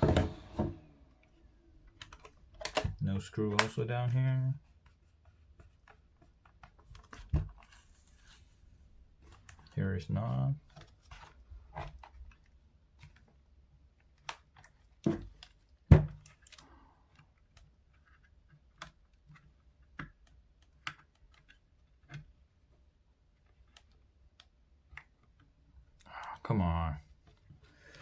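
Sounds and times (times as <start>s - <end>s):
plastic keyboard clicks and knocks: 1.9s - 3.8s.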